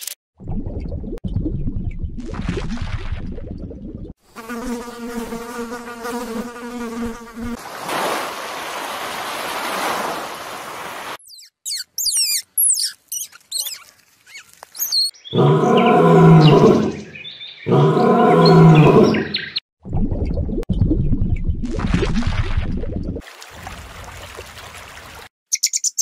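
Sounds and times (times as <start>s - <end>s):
fly buzzing: 4.3s - 7.6s
high quick chirps: 11.2s - 15.2s
lion roaring: 15.3s - 17.1s, 17.7s - 19.3s.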